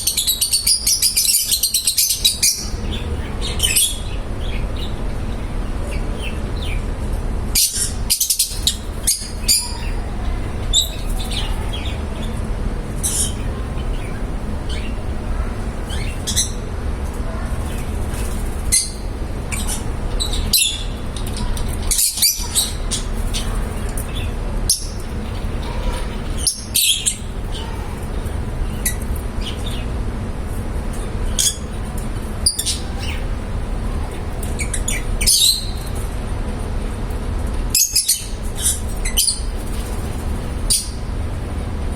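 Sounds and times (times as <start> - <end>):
lovebirds chirping: 0.0 - 6.9, 7.5 - 16.6, 17.6 - 30.0, 30.9 - 36.0, 37.8 - 41.1
low background hum: 0.0 - 41.9.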